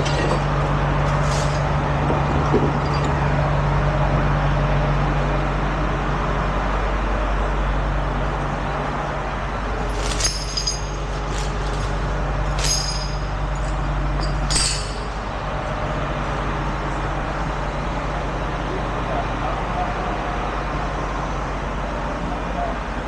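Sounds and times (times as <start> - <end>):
truck engine idling: 0.0 - 23.0
sharp metallic clinks: 9.8 - 15.3.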